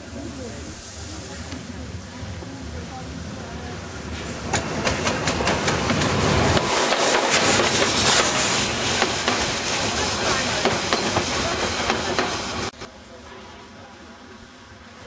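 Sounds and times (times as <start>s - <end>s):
steam hissing: 0.0s - 12.8s.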